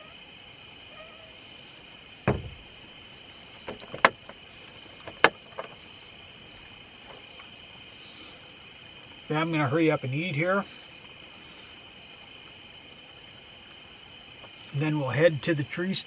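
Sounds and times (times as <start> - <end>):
crickets chirring: 0.0 - 16.0
dull thump: 2.2 - 2.9, 3.6 - 4.4
sharp clicks or knocks: 2.3 - 2.7, 3.7 - 4.4.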